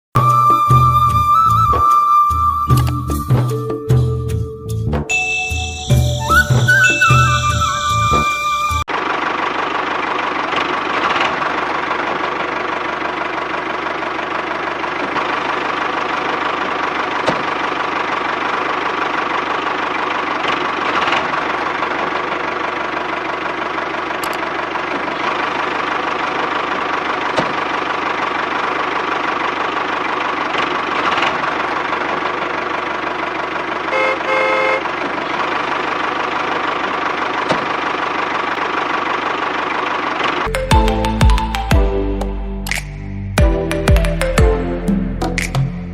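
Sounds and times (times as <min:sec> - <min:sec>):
short beeping tone: 0:05.1 - 0:08.8.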